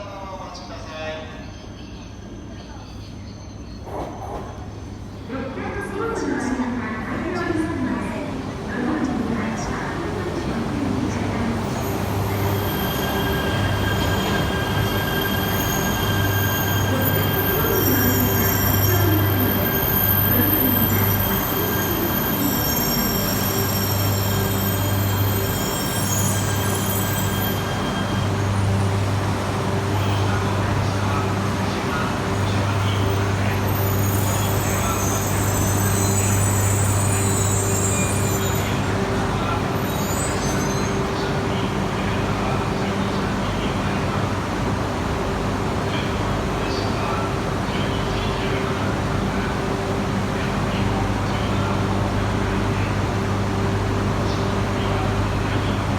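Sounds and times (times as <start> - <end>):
train running slowly: 0.0 - 55.9
train squealing: 0.8 - 5.2, 11.1 - 43.2.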